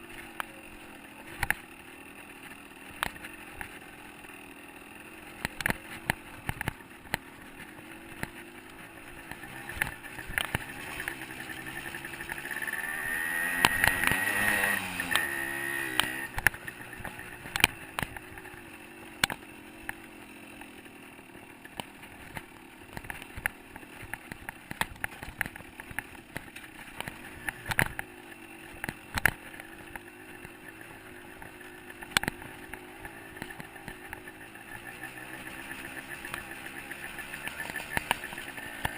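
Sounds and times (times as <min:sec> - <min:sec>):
dirt bike engine revving: 0:00.0 - 0:38.9
sharp clicks and knocks: 0:01.3 - 0:01.6, 0:02.9 - 0:03.8, 0:05.3 - 0:12.8, 0:13.5 - 0:18.6, 0:19.2 - 0:20.0, 0:21.6 - 0:28.1, 0:28.7 - 0:30.6, 0:31.3 - 0:34.8.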